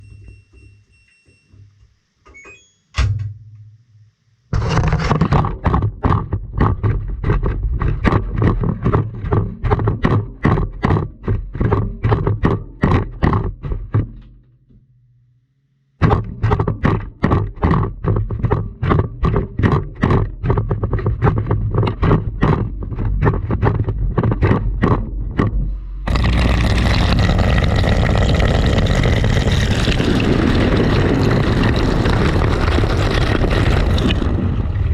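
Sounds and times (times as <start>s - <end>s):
objects knocking in washing machine drum: 5.2s - 14.4s, 16.0s - 25.6s
steady rushing noise: 26.1s - 34.9s.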